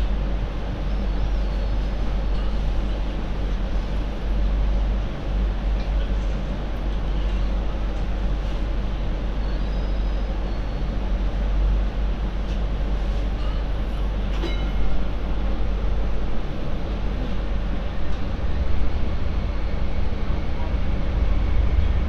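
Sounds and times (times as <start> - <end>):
light rail vehicle rumbling: 0.0 - 22.0
faint high squeal: 9.4 - 10.9.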